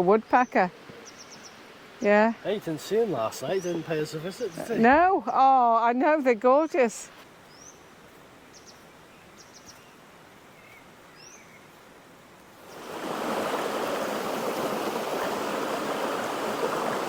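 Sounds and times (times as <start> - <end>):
faint bird chirps: 0.3 - 1.7, 7.5 - 11.7
fast-flowing stream rushing: 12.6 - 17.0.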